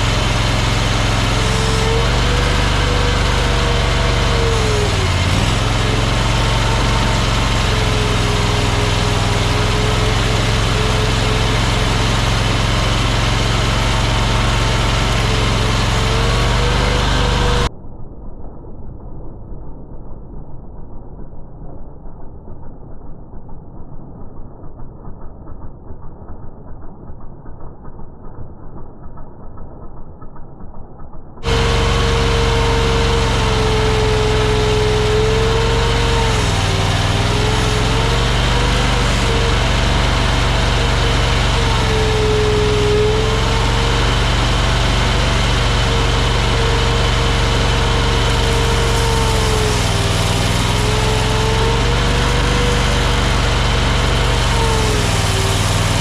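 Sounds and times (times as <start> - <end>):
skid steer engine whining: 0.0 - 17.7, 31.4 - 56.0.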